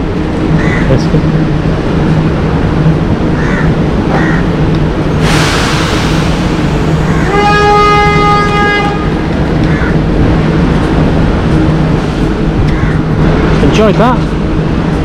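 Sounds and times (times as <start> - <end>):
low rumble: 1.2 - 15.0
train horn: 7.0 - 9.4.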